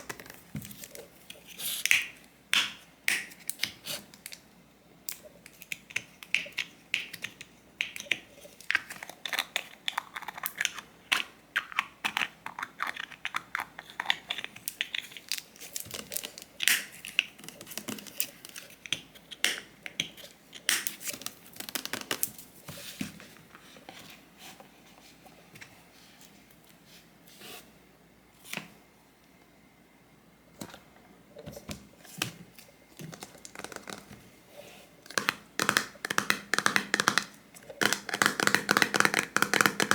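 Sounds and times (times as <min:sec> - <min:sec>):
clicks and taps on small objects: 0:05.1 - 0:15.4, 0:35.1 - 0:39.9.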